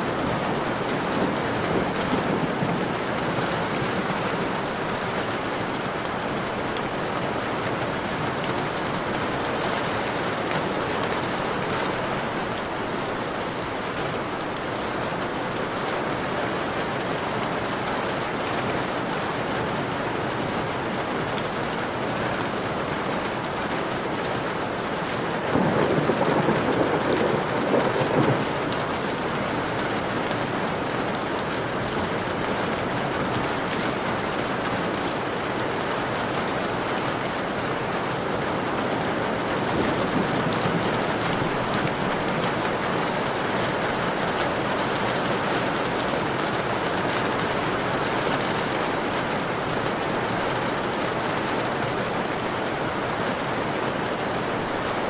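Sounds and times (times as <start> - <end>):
rain on a window: 0.0 - 55.0
low roll of thunder: 0.1 - 4.8, 25.5 - 28.8, 39.3 - 42.9.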